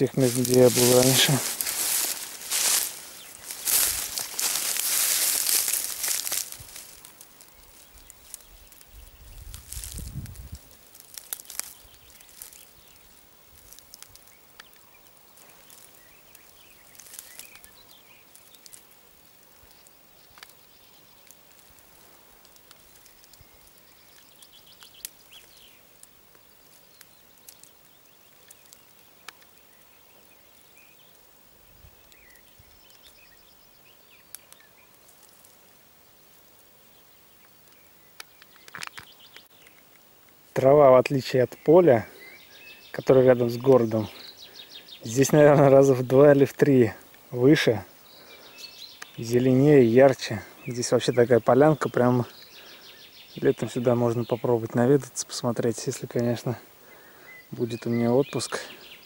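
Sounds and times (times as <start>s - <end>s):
bird chirps: 14.2s - 18.8s, 22.8s - 31.2s, 36.9s - 39.8s, 41.2s - 46.4s, 47.4s - 54.6s, 56.2s - 59.0s
light clicks and rustles: 38.2s - 40.4s.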